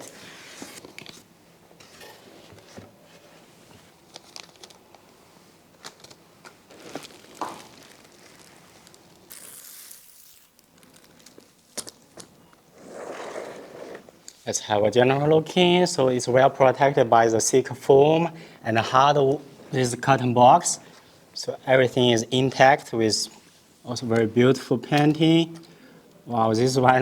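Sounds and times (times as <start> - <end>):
cardboard and foam rustling: 6.6 - 9.3.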